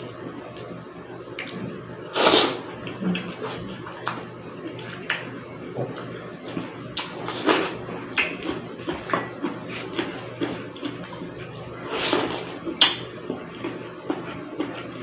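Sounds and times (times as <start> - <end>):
steady low hum: 0.0 - 15.0
chewing and slurping soup: 5.9 - 15.0.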